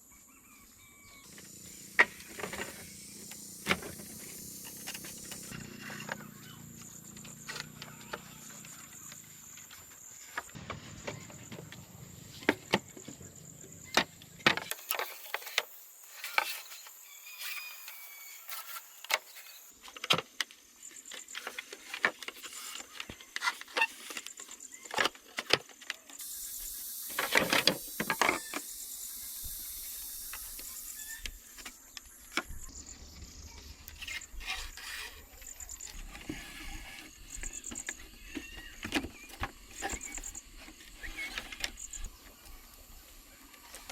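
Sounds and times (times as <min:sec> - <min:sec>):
steady scraping noise: 0:33.0 - 0:37.8.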